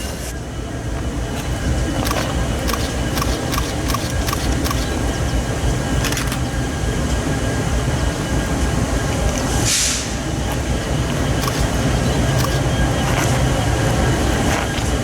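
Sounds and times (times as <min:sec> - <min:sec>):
freight train rumble: 0:00.0 - 0:15.0
train wheels clicking: 0:00.0 - 0:15.0
short hiss: 0:09.6 - 0:10.2.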